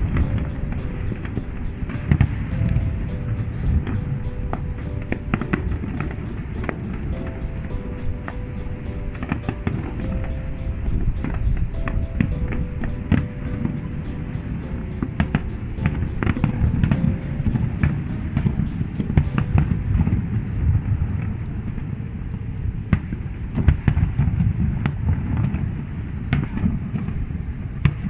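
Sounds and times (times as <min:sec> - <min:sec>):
low rumble of shell bursts: 0:00.0 - 0:21.9.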